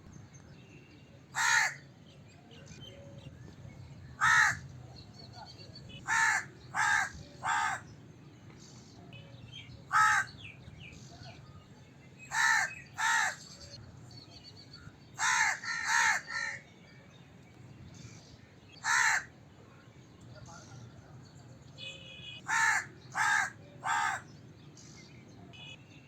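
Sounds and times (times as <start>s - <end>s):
crow cawing: 1.4s - 1.8s, 4.2s - 4.6s, 6.1s - 7.8s, 9.9s - 10.3s, 12.3s - 13.4s, 15.2s - 16.6s, 18.8s - 19.3s, 22.4s - 24.3s.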